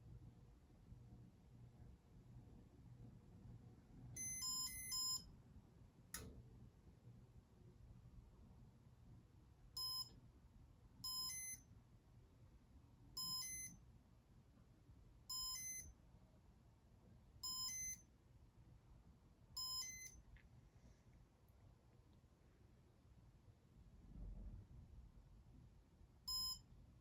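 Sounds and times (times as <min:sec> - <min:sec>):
faint low hum: 0:00.0 - 0:27.0
short electronic beeps: 0:04.2 - 0:05.3, 0:15.3 - 0:15.9, 0:17.4 - 0:18.0, 0:19.6 - 0:20.2, 0:26.3 - 0:26.6.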